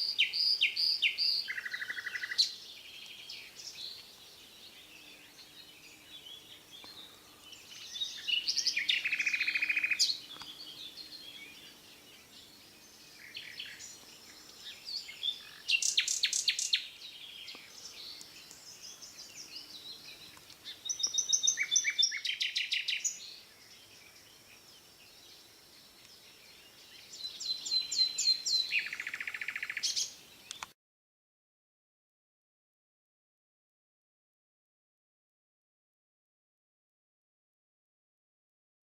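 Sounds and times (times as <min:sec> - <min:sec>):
songbird trilling and chirping: 0:00.0 - 0:30.7.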